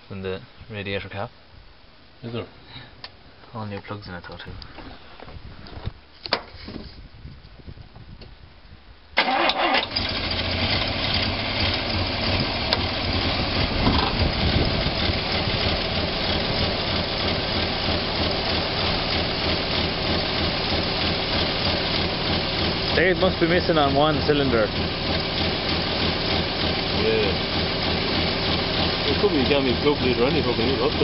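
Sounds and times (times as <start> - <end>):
car engine starting and idling: 9.2 - 31.0.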